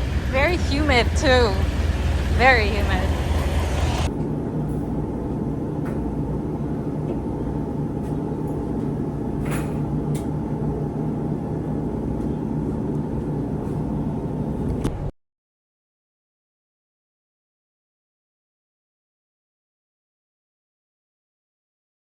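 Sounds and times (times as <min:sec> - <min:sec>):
truck engine running: 0:00.0 - 0:04.1.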